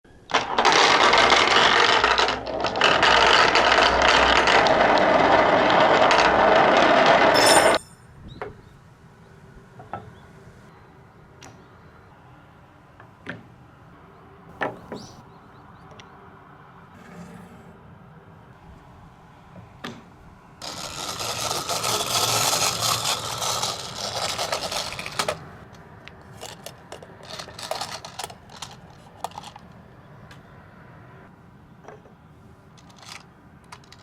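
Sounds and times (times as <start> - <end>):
marbles clicking on wood: 0.3 - 7.8, 20.6 - 29.7
marbles rattling down wooden track: 0.3 - 7.8, 20.6 - 25.5, 26.4 - 29.6, 32.8 - 34.0.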